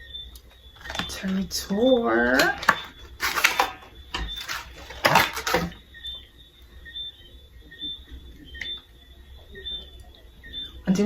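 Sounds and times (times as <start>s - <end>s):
box wrapping clicks and rustles: 0.8s - 1.3s, 2.3s - 5.8s.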